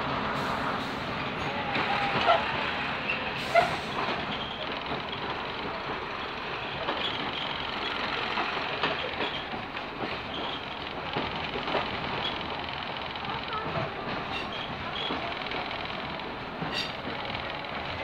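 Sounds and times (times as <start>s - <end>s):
train wheels rumbling on track: 0.0s - 18.0s
faint high squeaks: 16.7s - 17.0s.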